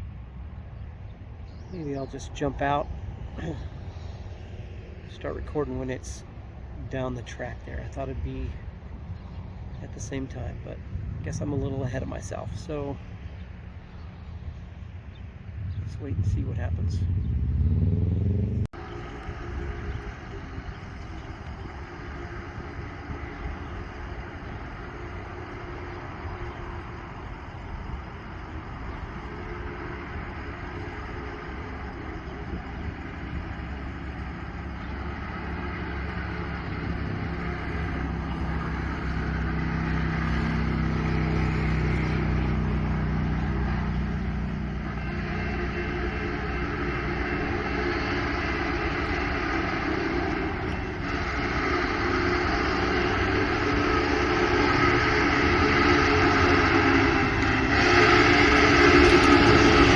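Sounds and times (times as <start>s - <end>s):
low steady drone: 0.0s - 59.9s
steam locomotive rumble: 15.4s - 59.9s.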